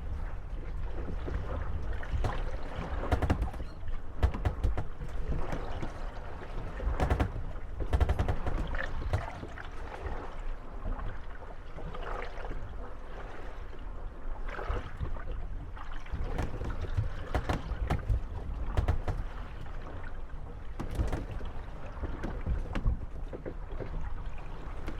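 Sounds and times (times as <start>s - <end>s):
water sloshing: 0.0s - 13.7s, 14.4s - 24.9s
wooden boats creaking: 0.1s - 11.1s, 15.0s - 24.9s
boats knocking together: 1.0s - 9.8s, 15.6s - 24.9s.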